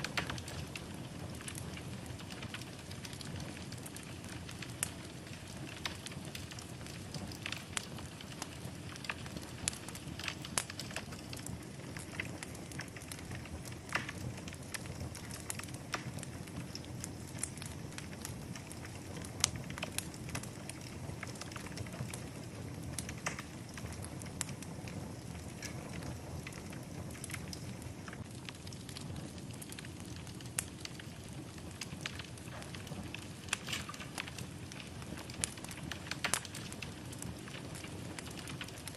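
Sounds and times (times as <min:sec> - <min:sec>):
low rush of flame: 0:00.0 - 0:38.9
wood fire crackling and popping: 0:00.0 - 0:38.9.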